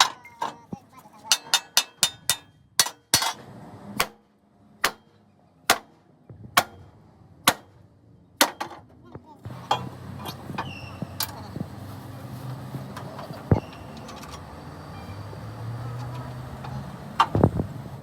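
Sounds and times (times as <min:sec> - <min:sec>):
hammer striking metal: 0:01.3 - 0:03.4, 0:04.8 - 0:06.0
low engine-like hum: 0:06.2 - 0:18.0.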